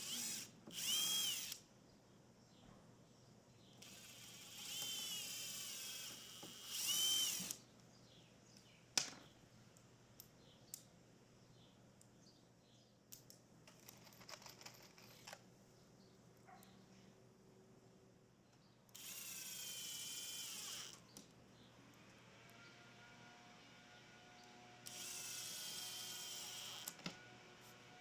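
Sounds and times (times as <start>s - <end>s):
power drill running: 0.0s - 1.6s, 3.8s - 7.6s, 18.9s - 21.0s, 24.8s - 28.0s
tools clicking and rattling: 13.2s - 15.4s.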